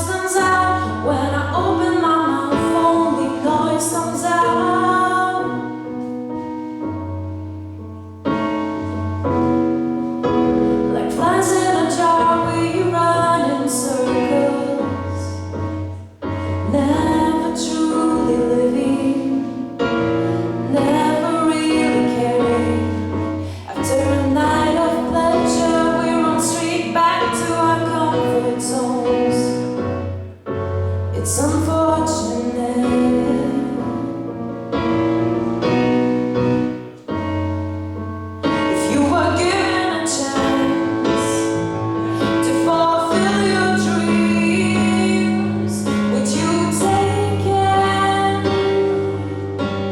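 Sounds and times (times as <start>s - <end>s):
woman singing: 0.0s - 5.9s, 10.8s - 15.8s, 16.4s - 29.9s, 31.1s - 34.5s, 38.5s - 41.6s, 42.2s - 49.4s
piano accompaniment: 0.0s - 49.9s.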